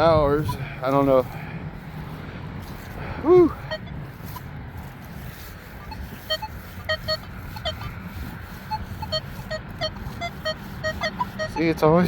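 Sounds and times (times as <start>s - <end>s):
wind rumble on microphone: 0.0s - 12.0s
metal detector beeps: 5.8s - 7.9s, 8.7s - 12.0s.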